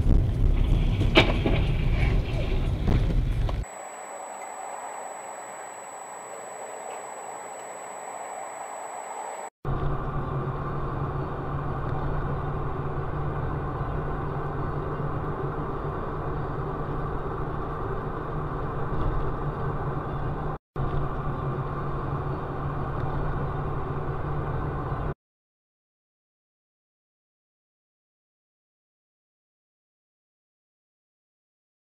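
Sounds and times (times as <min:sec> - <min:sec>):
car engine and road noise: 0:02.6 - 0:25.1.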